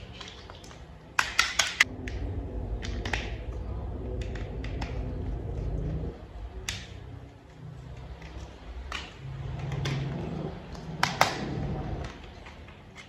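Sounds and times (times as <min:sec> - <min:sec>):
plastic toy parts clicking: 0:00.0 - 0:01.9, 0:07.8 - 0:13.0
handling rumble: 0:01.8 - 0:13.0.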